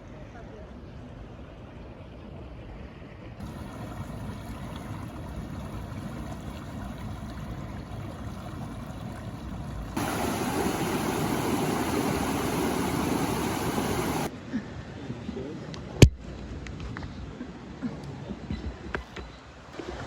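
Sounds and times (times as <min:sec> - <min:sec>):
water running over rocks: 0:03.4 - 0:14.3.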